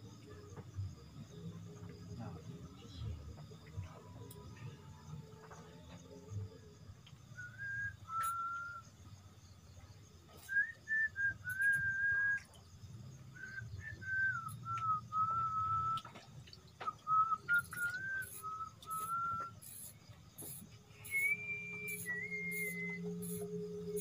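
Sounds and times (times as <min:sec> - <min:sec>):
person whistling a tune: 0:07.3 - 0:08.9, 0:10.4 - 0:12.5, 0:13.4 - 0:16.1, 0:16.8 - 0:19.8, 0:20.9 - 0:24.0.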